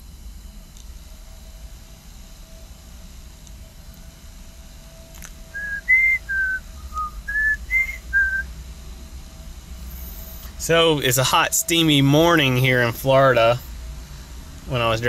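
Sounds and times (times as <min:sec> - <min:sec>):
whistled notes: 0:05.5 - 0:08.5.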